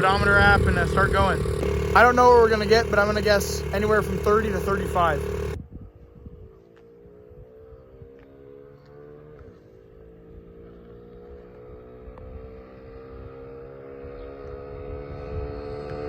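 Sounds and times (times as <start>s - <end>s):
dirt bike engine at high revs: 0.0s - 5.6s, 8.8s - 16.0s.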